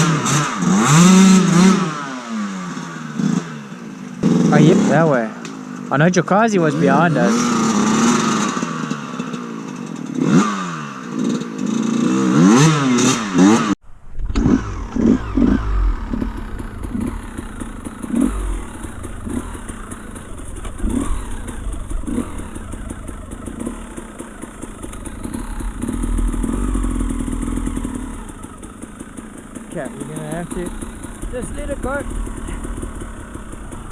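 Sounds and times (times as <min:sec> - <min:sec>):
dirt bike engine revving: 0:00.0 - 0:33.9
low thumps: 0:13.8 - 0:33.9.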